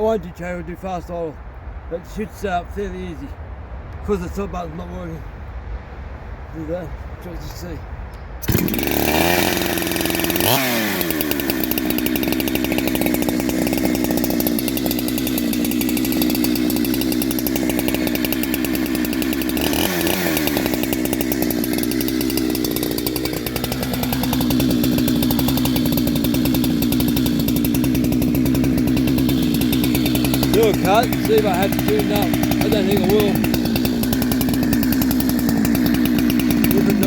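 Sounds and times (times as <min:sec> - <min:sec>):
chainsaw engine revving: 0:08.4 - 0:37.0.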